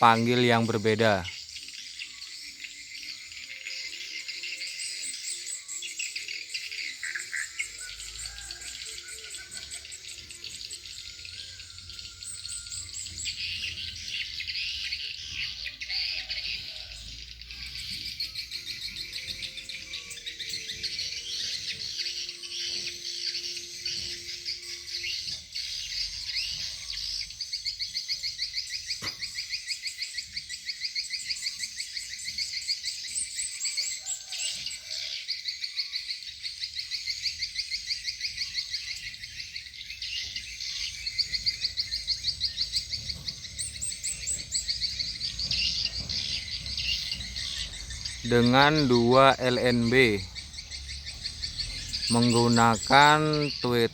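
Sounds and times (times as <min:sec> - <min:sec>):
recorded swiftlet calls chirping: 0:00.0 - 0:53.9.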